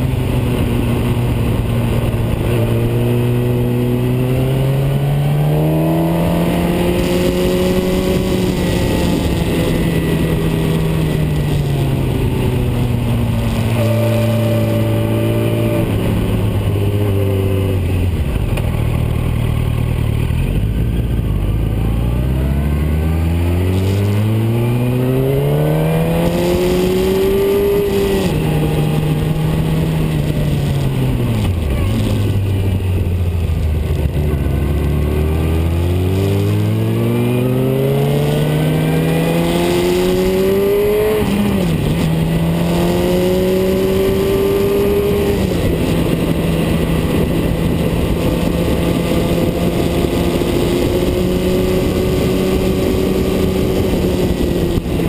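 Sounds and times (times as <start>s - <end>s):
car engine revving with gear changes: 0.0s - 55.0s.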